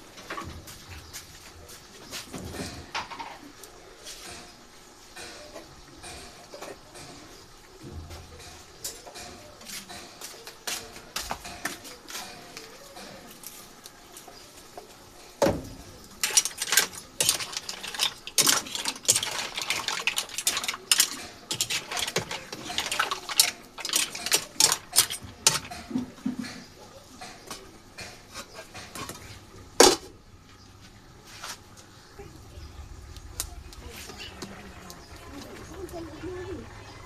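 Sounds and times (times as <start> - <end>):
hard objects clinking and knocking: 16.2 - 29.2.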